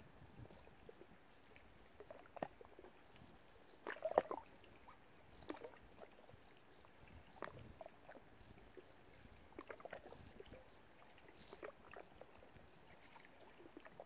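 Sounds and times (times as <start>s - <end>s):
small water splashes: 0.4s - 14.0s.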